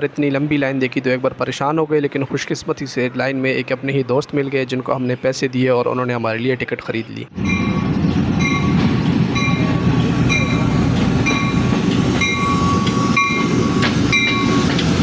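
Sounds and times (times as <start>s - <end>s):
bell-like tone ringing: 7.4s - 8.8s, 9.4s - 14.7s
train rumbling: 7.4s - 15.0s.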